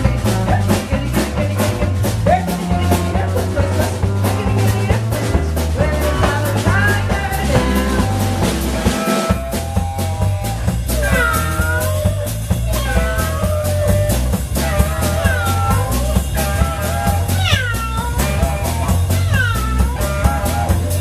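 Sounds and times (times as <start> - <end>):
live blues band: 0.0 - 21.0
lead instrument wailing bent notes: 7.2 - 21.0.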